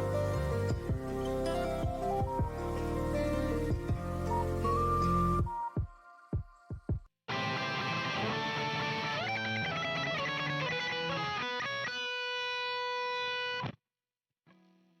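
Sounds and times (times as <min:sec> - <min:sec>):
guitar music: 0:00.0 - 0:05.4, 0:07.3 - 0:13.8.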